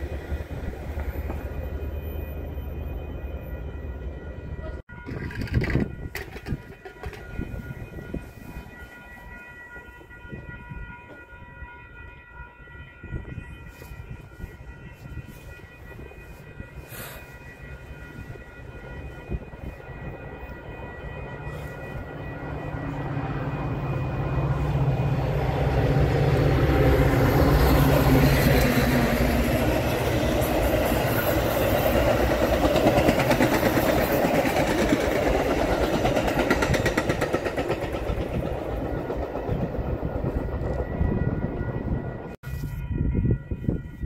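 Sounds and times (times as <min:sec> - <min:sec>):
diesel locomotive engine: 0:00.0 - 0:44.0
train wheels clacking over rail joints: 0:05.0 - 0:07.4.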